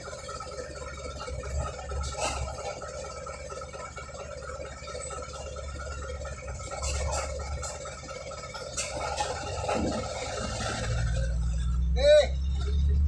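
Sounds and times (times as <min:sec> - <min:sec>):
bulldozer engine rumbling: 0:00.0 - 0:13.0.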